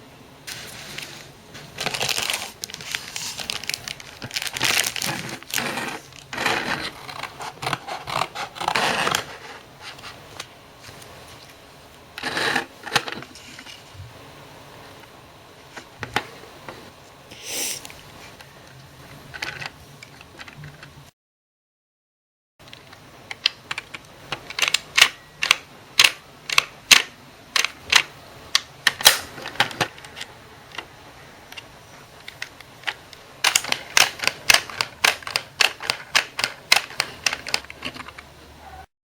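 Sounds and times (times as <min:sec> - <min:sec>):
plastic toy clicking: 0:32.3 - 0:38.2.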